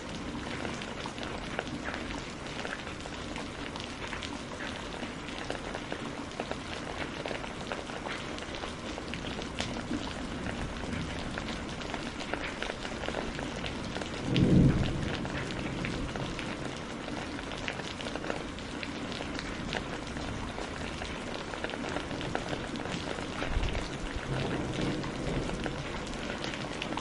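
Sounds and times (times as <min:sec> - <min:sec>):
rain drops ticking: 0:00.0 - 0:27.0
low rumble of thunder: 0:09.0 - 0:27.0.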